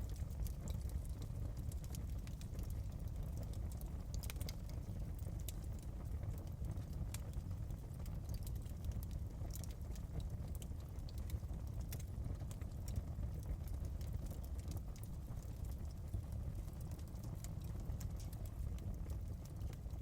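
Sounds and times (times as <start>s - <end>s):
burning wood popping: 0.0s - 20.0s
low rumble of fire: 0.0s - 20.0s.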